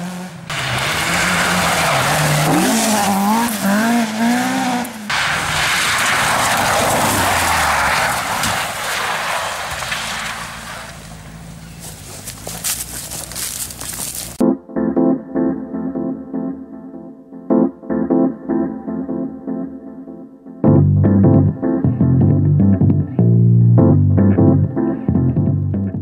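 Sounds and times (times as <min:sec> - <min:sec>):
rally car engine revving: 0:00.0 - 0:14.4
tyre noise: 0:00.0 - 0:14.4.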